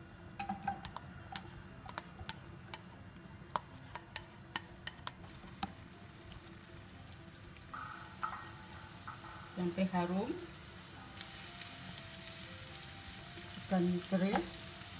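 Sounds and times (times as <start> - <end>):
food frying in oil: 4.9 - 14.9.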